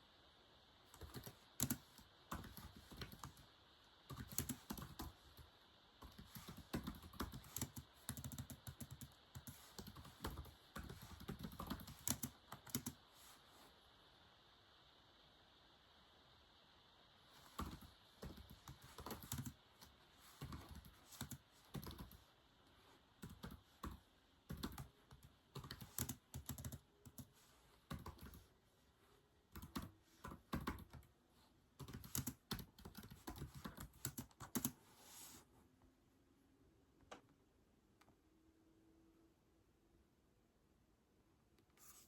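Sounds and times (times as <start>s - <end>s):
keyboard typing: 0.9s - 3.5s, 4.1s - 13.0s, 17.4s - 22.3s, 23.2s - 28.5s, 29.5s - 31.1s, 31.8s - 34.8s.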